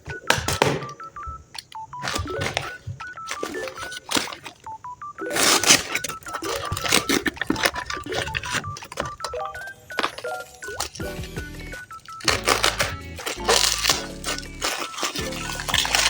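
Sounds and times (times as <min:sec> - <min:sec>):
rustling bursts: 0:11.7 - 0:16.0.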